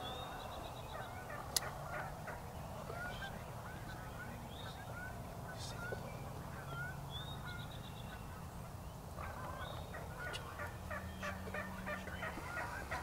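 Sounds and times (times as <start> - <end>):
small birds chirping: 0.0 - 13.0
turkey yelps: 0.9 - 4.2, 6.6 - 7.7, 9.2 - 13.0.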